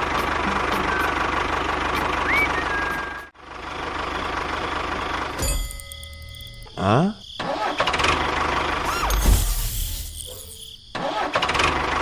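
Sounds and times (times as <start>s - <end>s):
engine putter: 0.0s - 6.8s, 7.4s - 9.4s, 11.0s - 12.0s
short rising whistle tone: 2.2s - 3.3s.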